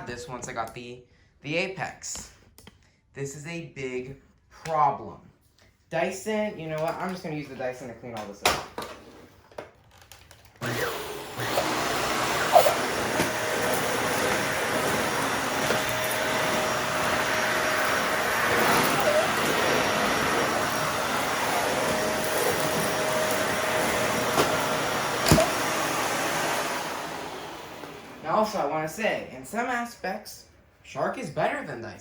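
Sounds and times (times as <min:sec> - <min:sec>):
vacuum cleaner running: 0:10.6 - 0:29.2.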